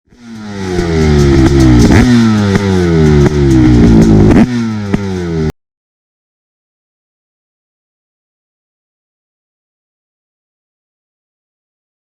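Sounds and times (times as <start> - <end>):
engine cracks: 0.1 - 5.3
motocross engine revving: 0.1 - 5.5.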